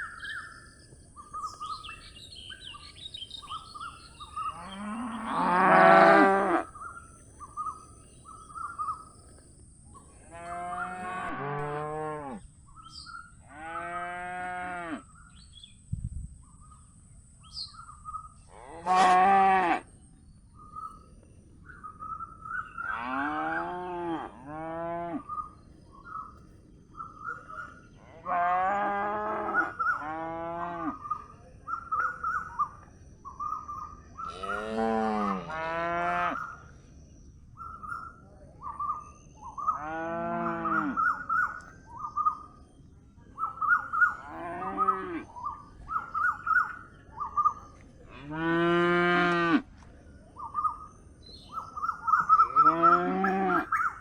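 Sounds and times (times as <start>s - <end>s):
small birds chirping: 0.0s - 5.7s, 6.5s - 11.2s, 36.2s - 48.2s, 49.4s - 54.0s
calf mooing: 18.7s - 19.8s, 34.3s - 36.4s.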